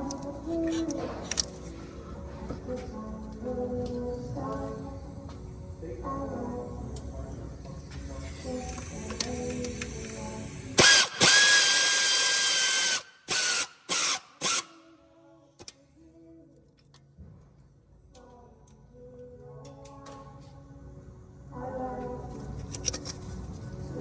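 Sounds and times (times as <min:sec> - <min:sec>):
power ratchet whining: 0:10.8 - 0:14.8.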